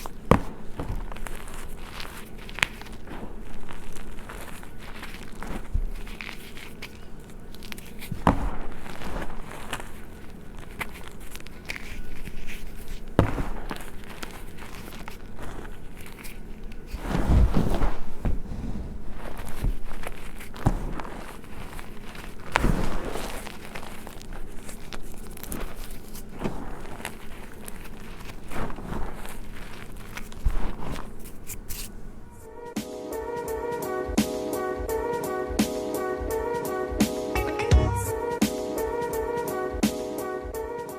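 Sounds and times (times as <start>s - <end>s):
chalk crunching and crumbling: 0.0s - 32.8s.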